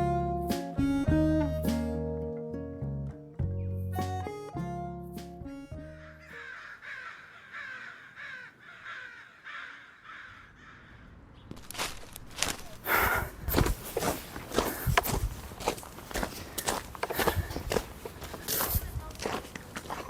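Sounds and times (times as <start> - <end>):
bird harsh falling calls: 5.8 - 11.7
loud crunching footsteps: 11.5 - 20.0.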